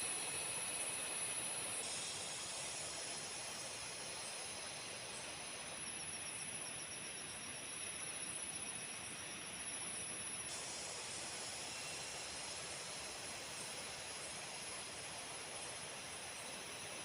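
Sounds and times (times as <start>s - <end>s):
insects trilling and chirping: 0.0s - 17.0s.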